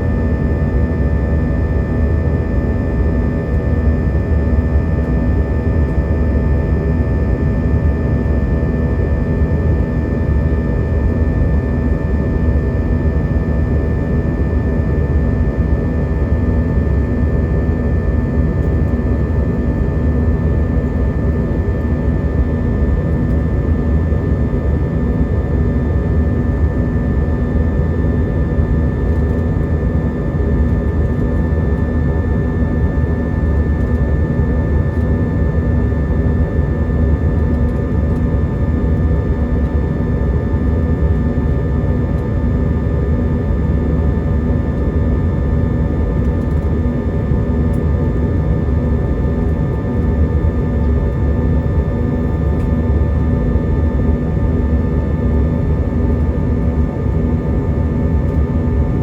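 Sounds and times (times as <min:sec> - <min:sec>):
airflow rush in aircraft cabin: 0:17.0 - 0:54.3.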